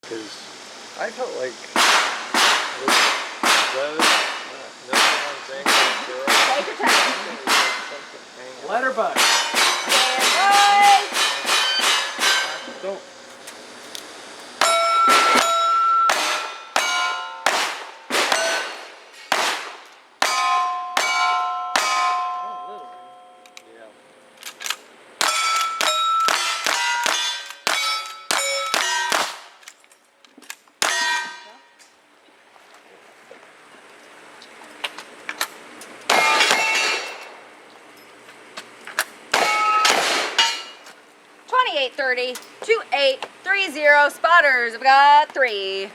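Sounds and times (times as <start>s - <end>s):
steel targets ringing when hit: 9.2s - 13.0s, 14.6s - 19.5s, 20.2s - 23.5s, 25.2s - 29.4s, 30.8s - 31.8s, 36.1s - 37.4s, 39.4s - 40.8s.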